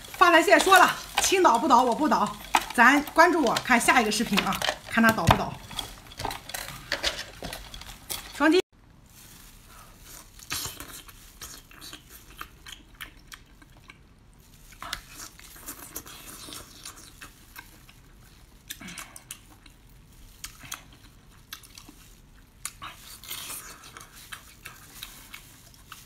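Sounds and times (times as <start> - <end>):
wet chewing and biting: 10.4 - 26.0.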